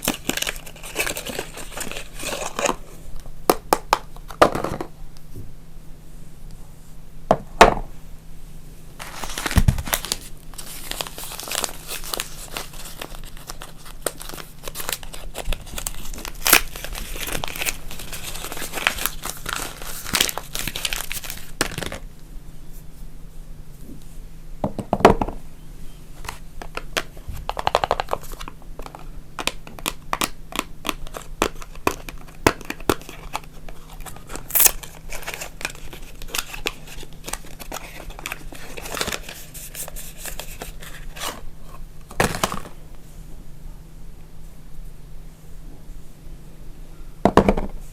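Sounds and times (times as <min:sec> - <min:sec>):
soap packaging crinkling and tearing: 0:00.0 - 0:02.8, 0:09.0 - 0:22.0, 0:26.7 - 0:42.6.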